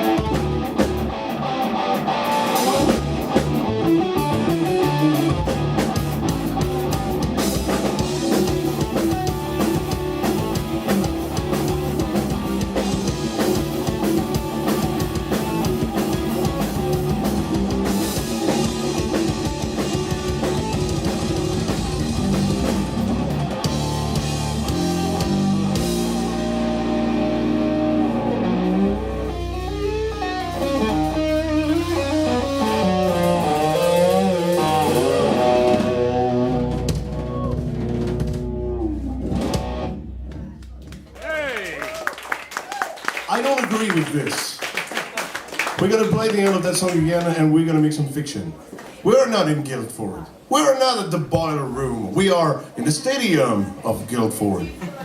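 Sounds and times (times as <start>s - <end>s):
low bass notes: 0.0s - 1.9s, 2.6s - 41.4s
steady drumming: 0.0s - 27.6s, 30.1s - 42.3s
electric guitar: 0.0s - 41.3s.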